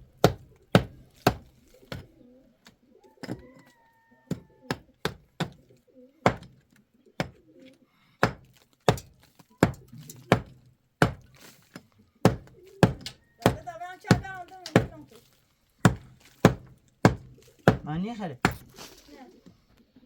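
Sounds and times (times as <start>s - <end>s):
sharp chopping strikes: 0.2s - 2.0s, 6.3s - 6.6s, 8.2s - 11.6s, 12.3s - 15.0s, 15.9s - 18.8s.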